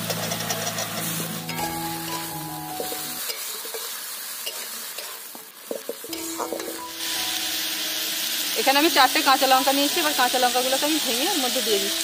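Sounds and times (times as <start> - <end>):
food sizzling in oil: 0.0 - 12.0
metal spatula scraping pan: 2.1 - 6.9
spatula knocking on pan: 2.7 - 3.2, 5.7 - 6.8.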